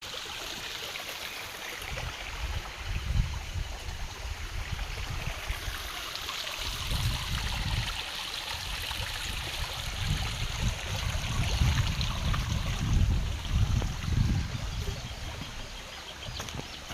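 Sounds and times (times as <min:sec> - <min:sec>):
running water rushing: 0:00.0 - 0:16.9
low rumbling gusts: 0:09.3 - 0:16.1.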